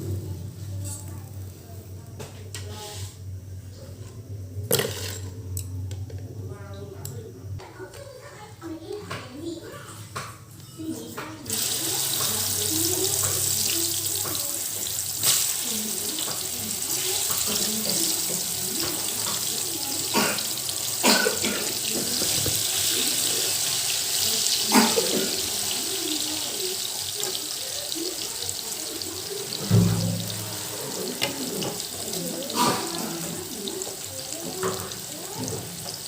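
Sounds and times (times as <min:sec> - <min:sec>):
tap water running into sink: 0:11.5 - 0:23.6, 0:24.2 - 0:36.0.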